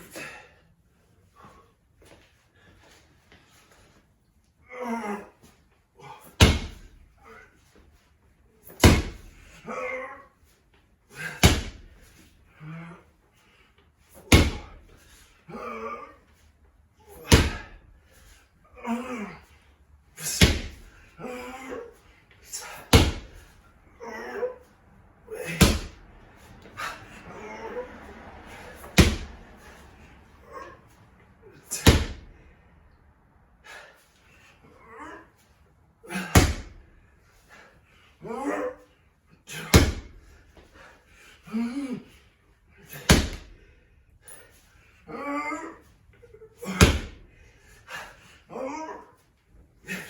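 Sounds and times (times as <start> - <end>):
effortful grunts: 4.6 - 7.6, 8.8 - 10.4, 11.1 - 13.2, 14.3 - 16.4, 17.0 - 17.9, 18.6 - 32.3, 34.6 - 50.0
slam ball thudding on floor: 29.0 - 29.3, 31.9 - 32.2, 39.8 - 40.1.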